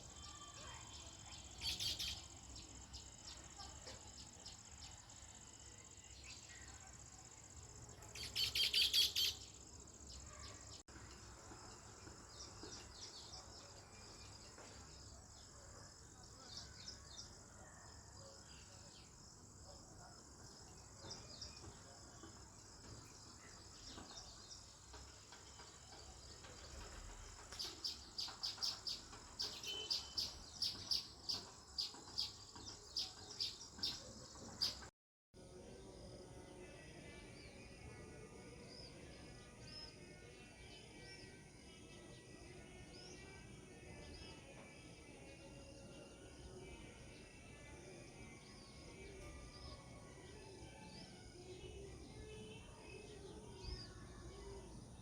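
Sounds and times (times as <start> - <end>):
sparrows chirping: 0.0 - 17.4, 20.5 - 34.9.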